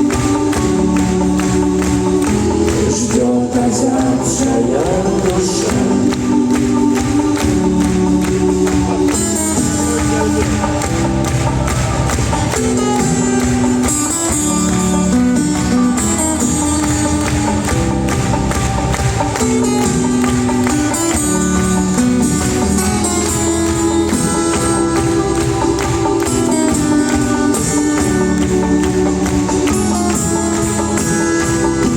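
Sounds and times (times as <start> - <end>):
rock band playing live: 0.0 - 31.9
steady drum beat: 0.0 - 31.9.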